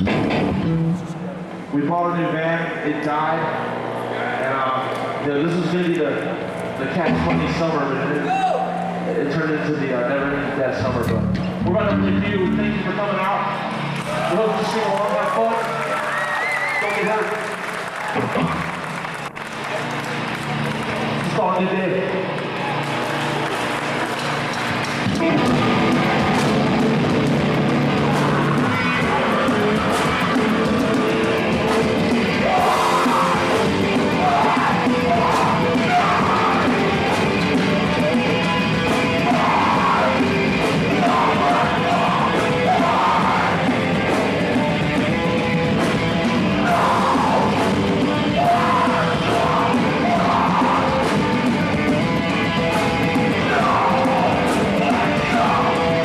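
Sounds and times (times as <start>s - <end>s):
rock band playing: 0.0s - 1.8s, 6.9s - 56.0s
person shouting vocals: 8.2s - 8.8s, 34.1s - 36.7s, 39.2s - 40.2s, 48.4s - 51.0s.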